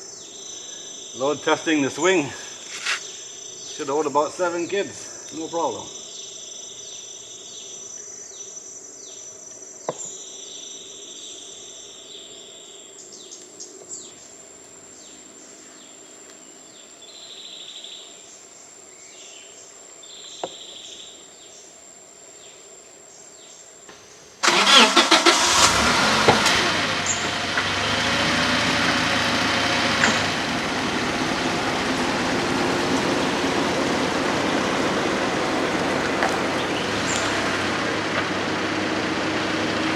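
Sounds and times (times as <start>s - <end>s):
insects chirping: 0.0s - 39.9s
vehicle engine and road noise: 2.6s - 3.1s, 24.4s - 39.9s.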